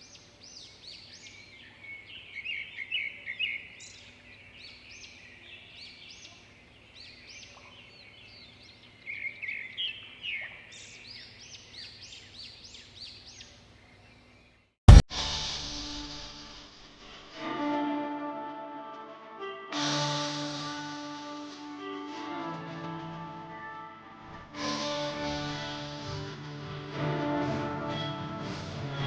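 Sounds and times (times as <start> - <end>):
birds chirping and chattering: 0.0 - 14.7.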